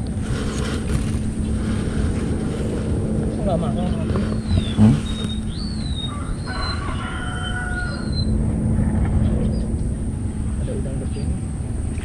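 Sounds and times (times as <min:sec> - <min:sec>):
birds chirping: 0:00.0 - 0:12.0
low rumble: 0:00.0 - 0:12.0
long drawn-out bird call: 0:04.1 - 0:08.4.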